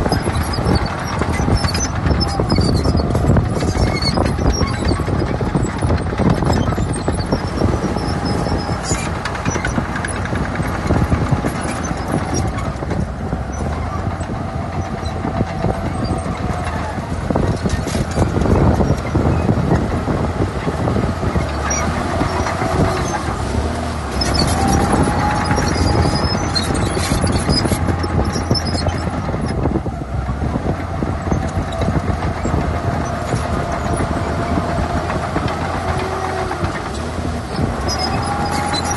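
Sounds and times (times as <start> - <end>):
faint squealing: 0.0 - 12.8, 20.6 - 29.6
heavy diesel engine rumble: 0.0 - 38.9.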